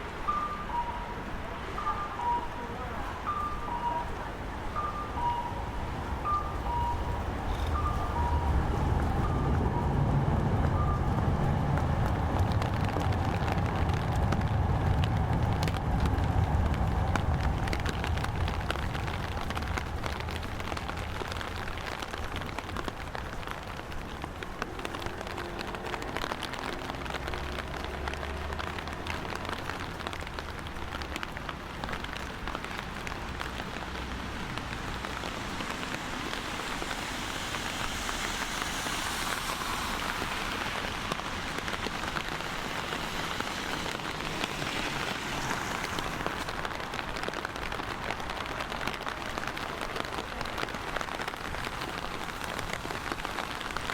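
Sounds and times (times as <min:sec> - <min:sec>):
rain falling: 0:00.0 - 0:53.9
low rumble: 0:04.5 - 0:21.8.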